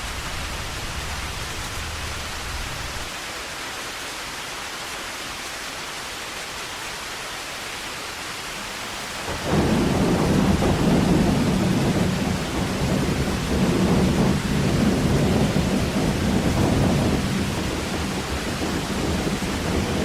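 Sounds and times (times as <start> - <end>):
heavy rain falling: 0.0 - 20.0
loud thunder crash: 9.2 - 20.0
low thunder rumble: 9.2 - 20.0.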